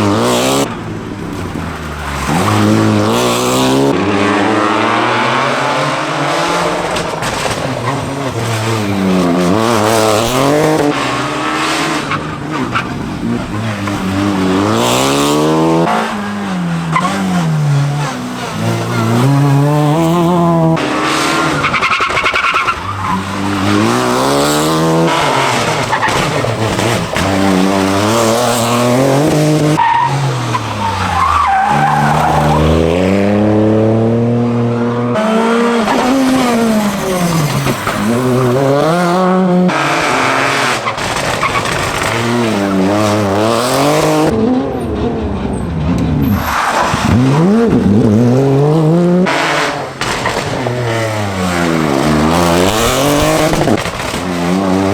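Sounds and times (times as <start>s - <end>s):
rally car engines revving: 0.0s - 54.9s.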